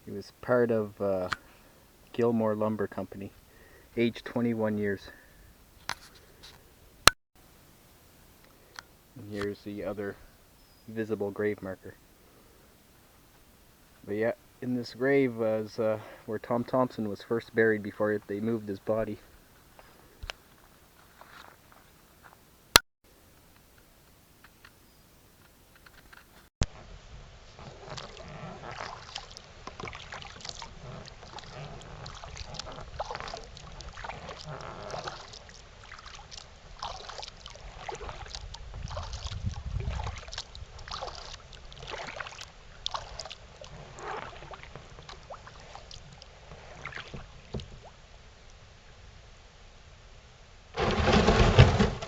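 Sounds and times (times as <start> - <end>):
paddle strokes splashing water: 27.5 - 48.6.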